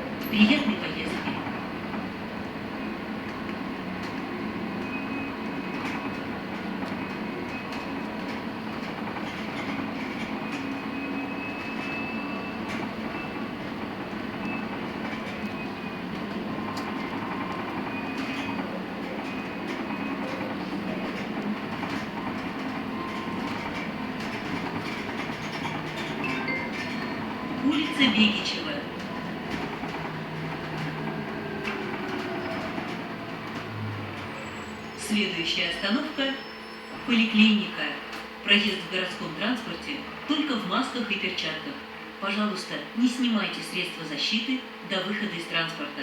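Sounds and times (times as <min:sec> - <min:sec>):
road and tyre noise: 0:01.5 - 0:35.1
rattles and clicks: 0:19.2 - 0:27.3.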